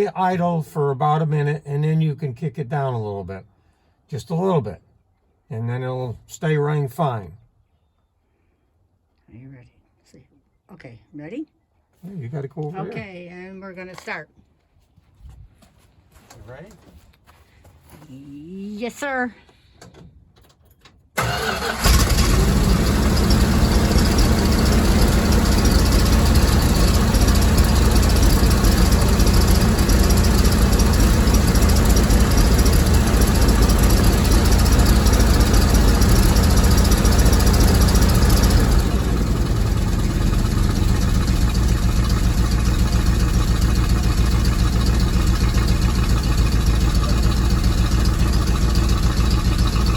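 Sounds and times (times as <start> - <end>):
pickup engine fast idle: 21.2 - 49.9.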